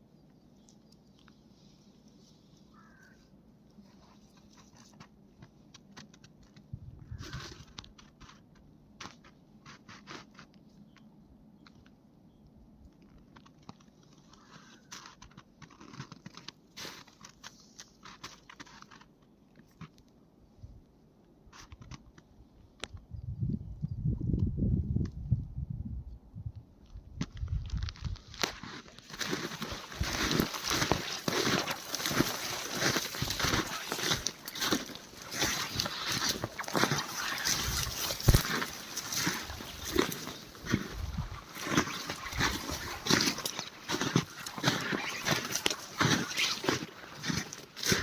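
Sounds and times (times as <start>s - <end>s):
footsteps crunching on snow: 7.1s - 8.4s, 14.1s - 19.1s, 27.3s - 48.0s.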